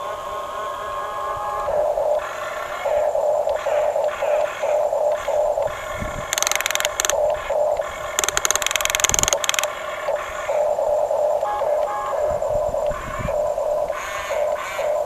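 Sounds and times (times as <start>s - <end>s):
small electric motors whining: 6.3s - 7.2s, 8.2s - 9.7s.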